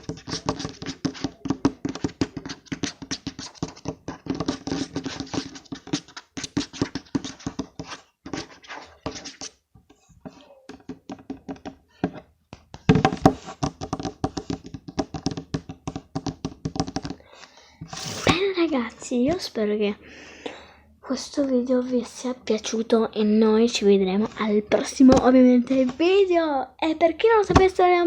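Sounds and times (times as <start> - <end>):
fingers tapping on phone: 10.7 - 17.2.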